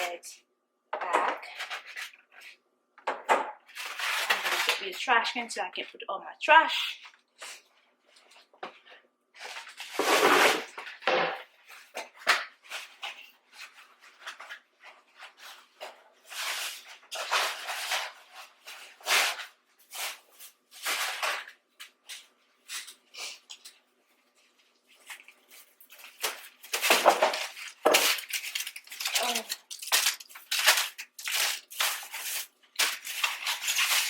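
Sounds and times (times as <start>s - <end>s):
packaging rustling: 3.6s - 5.0s, 11.6s - 34.0s.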